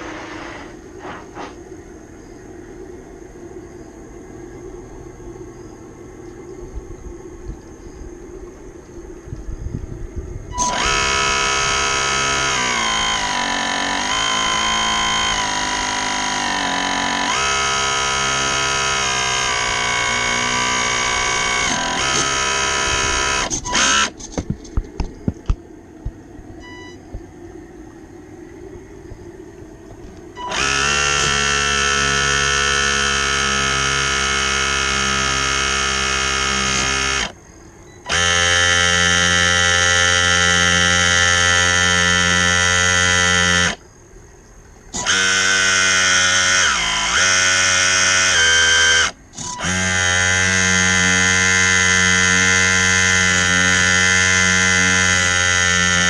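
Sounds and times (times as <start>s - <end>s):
electric motor buzzing: 0.0s - 1.6s, 10.5s - 24.4s, 30.1s - 37.4s, 38.0s - 43.8s, 44.9s - 56.0s.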